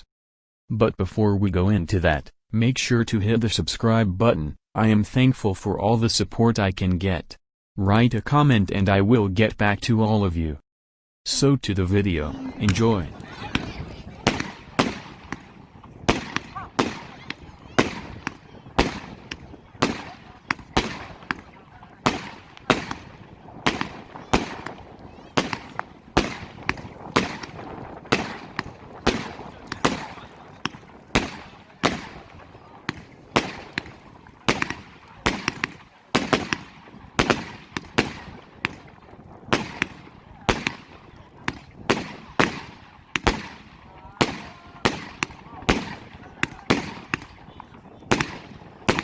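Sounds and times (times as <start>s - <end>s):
firework cake bangs: 12.2s - 49.0s.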